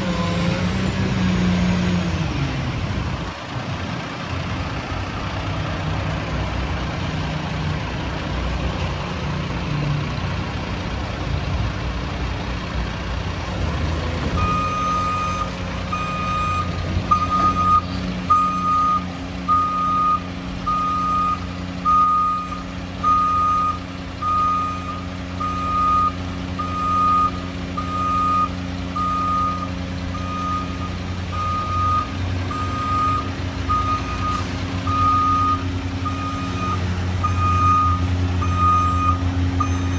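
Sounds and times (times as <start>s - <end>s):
garbage truck engine running: 0.0s - 39.9s
backup alarm beeping: 14.4s - 39.9s.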